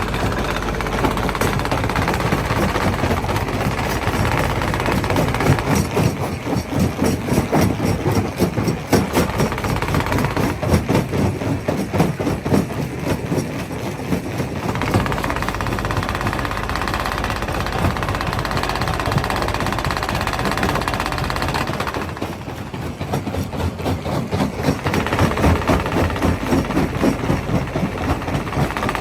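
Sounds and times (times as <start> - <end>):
rock crusher drone: 0.0 - 7.2.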